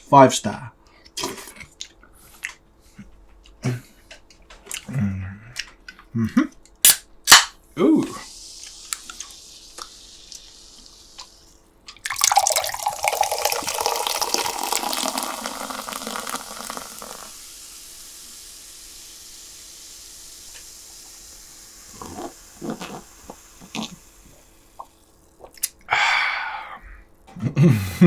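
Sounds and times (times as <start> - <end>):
water being poured: 8.2 - 17.5.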